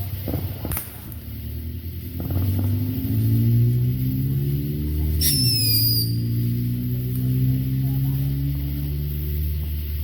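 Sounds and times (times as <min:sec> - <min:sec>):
vehicle engine running: 0:00.0 - 0:10.0
high falling whistle: 0:05.2 - 0:06.4.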